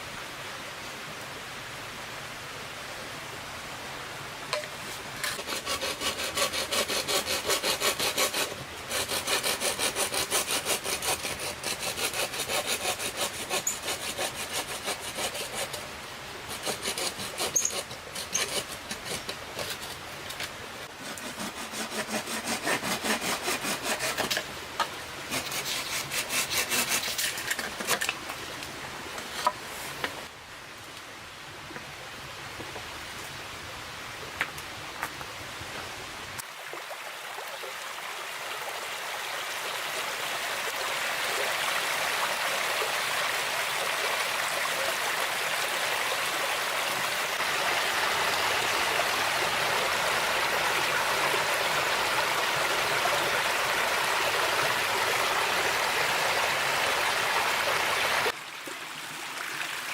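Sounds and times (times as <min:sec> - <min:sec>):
saw cutting wood: 0:05.2 - 0:15.9, 0:16.5 - 0:20.0, 0:20.9 - 0:24.5, 0:25.3 - 0:28.1, 0:46.6 - 0:58.3.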